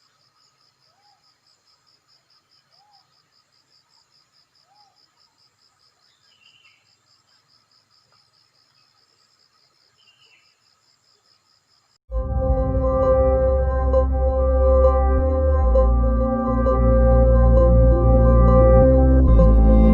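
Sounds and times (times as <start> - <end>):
faint bird calls: 0.9 - 1.4, 2.6 - 3.2, 4.6 - 7.5.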